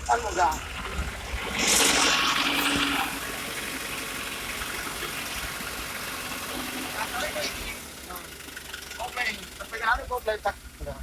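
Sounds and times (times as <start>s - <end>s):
truck engine running: 0.0s - 11.0s
hissing air rush: 1.2s - 3.8s.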